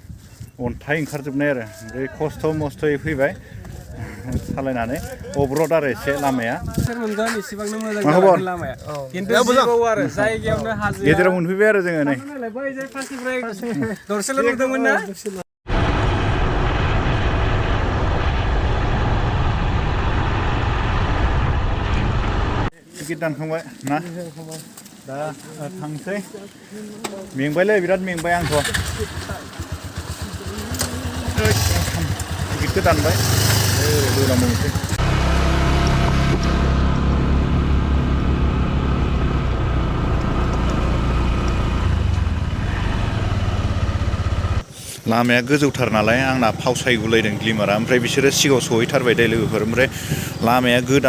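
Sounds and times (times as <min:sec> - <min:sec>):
vehicle moving with low rumble: 0:15.7 - 0:22.7, 0:28.8 - 0:44.6
motorcycle engine running: 0:28.4 - 0:44.6.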